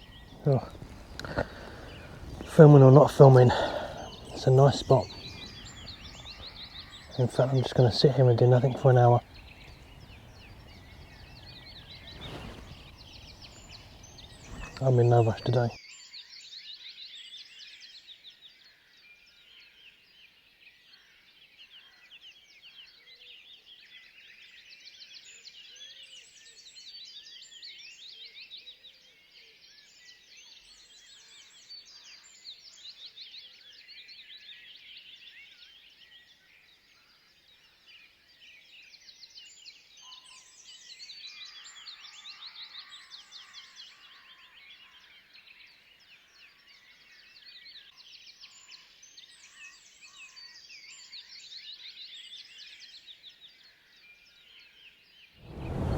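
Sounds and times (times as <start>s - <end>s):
birds chirping: 0.0s - 15.8s, 55.4s - 55.9s.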